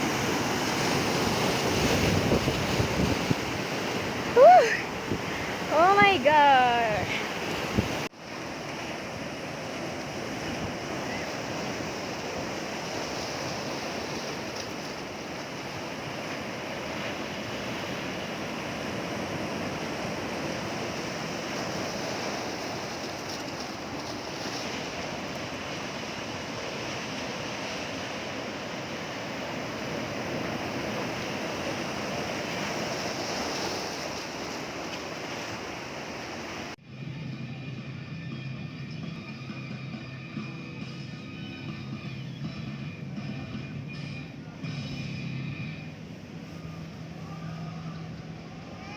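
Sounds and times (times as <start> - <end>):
sea waves breaking on shore: 0.0 - 36.8
music: 36.8 - 48.8.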